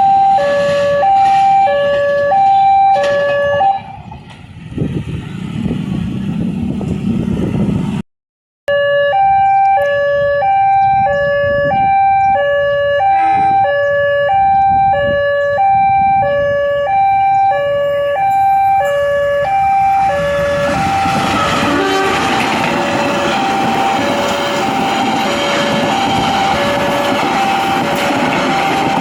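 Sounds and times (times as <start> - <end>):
level crossing two-tone alarm: 0.0 - 4.0, 8.7 - 29.0
train rumble: 3.0 - 8.0, 13.0 - 29.0.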